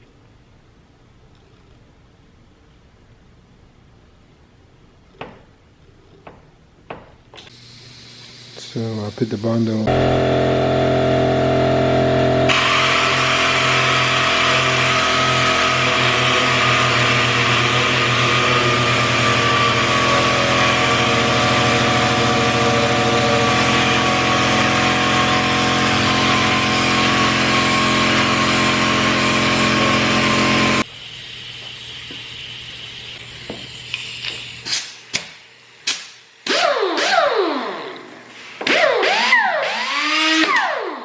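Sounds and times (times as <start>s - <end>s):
sharp knocks: 6.2s - 7.5s
power tool whining: 7.5s - 34.8s, 36.4s - 41.0s.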